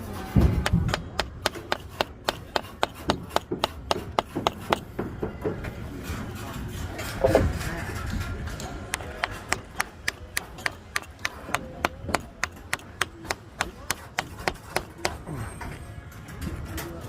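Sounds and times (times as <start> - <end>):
rapid sharp taps: 8.9 - 15.2.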